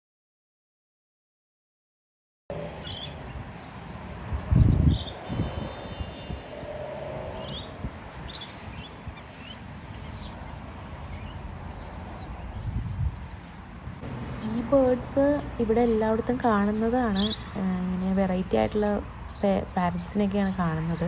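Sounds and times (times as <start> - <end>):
parrots chirping: 2.8 - 12.6, 15.7 - 21.0
low rumble on microphone: 3.4 - 8.3, 11.6 - 13.4.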